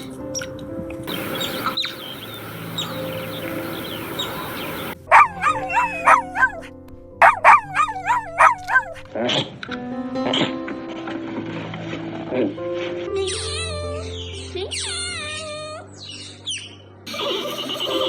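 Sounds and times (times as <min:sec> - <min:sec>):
soft background music: 0:00.0 - 0:18.0
chickens clucking: 0:01.1 - 0:05.0
faint chirps: 0:01.1 - 0:05.0, 0:17.1 - 0:18.0.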